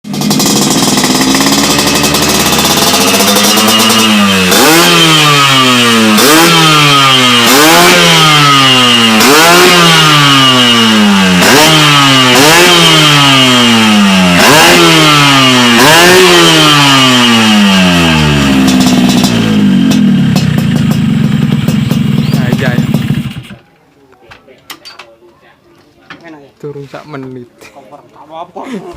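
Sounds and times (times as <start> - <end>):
motorcycle engine revving: 0.0 - 23.6
motorcycle engine idling: 0.1 - 16.1, 16.8 - 23.6.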